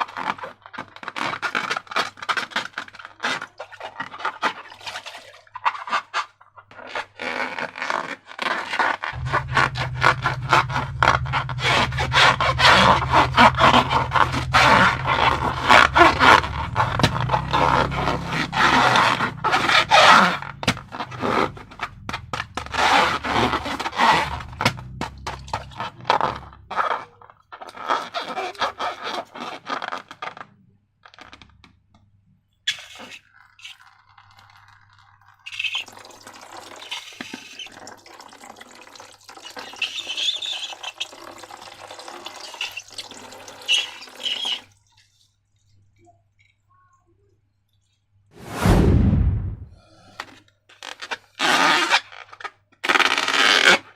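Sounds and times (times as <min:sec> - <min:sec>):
hands scraping slime: 0:00.0 - 0:30.6
slime squelching: 0:00.1 - 0:30.2.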